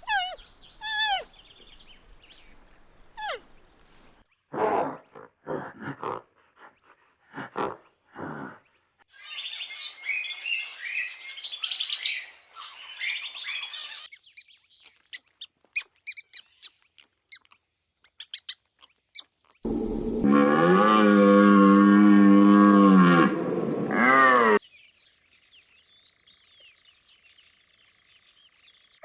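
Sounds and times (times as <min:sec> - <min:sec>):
small birds chirping: 0:00.0 - 0:04.4, 0:08.6 - 0:20.2
cow mooing: 0:19.7 - 0:24.6.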